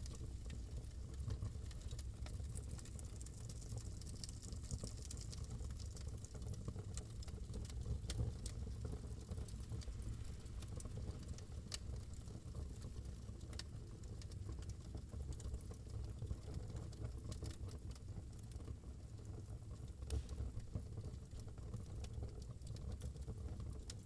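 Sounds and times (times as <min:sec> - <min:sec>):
low steady rumble: 0:00.0 - 0:14.5
wood fire crackling and popping: 0:00.0 - 0:24.0.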